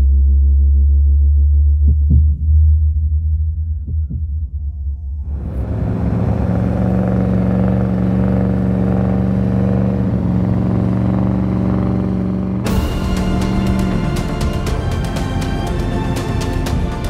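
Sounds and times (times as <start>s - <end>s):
car engine running: 5.3s - 17.0s
music with sharp ticking: 12.6s - 17.0s.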